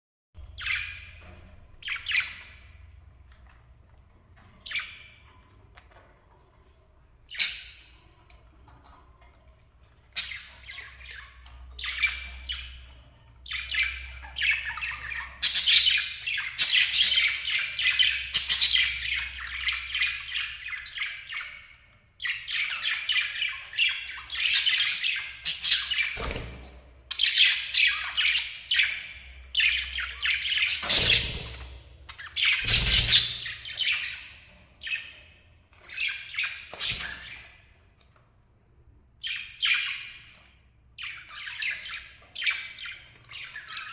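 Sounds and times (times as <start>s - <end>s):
lovebirds chattering and squawking: 0.5s - 1.2s, 10.1s - 26.4s, 27.1s - 37.6s, 41.0s - 43.9s.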